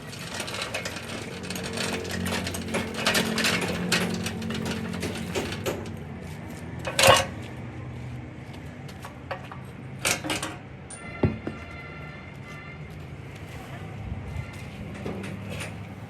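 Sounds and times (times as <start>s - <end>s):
loud ringing metal clang: 10.3s - 11.8s.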